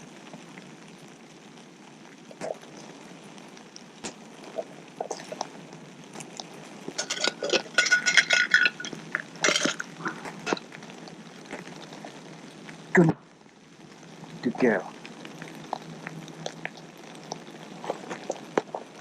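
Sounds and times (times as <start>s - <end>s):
clinks against bowl: 7.0s - 9.8s.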